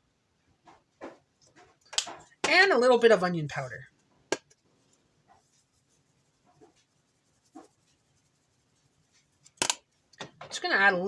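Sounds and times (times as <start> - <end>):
handling clicks and taps: 1.0 - 2.6, 9.4 - 10.5.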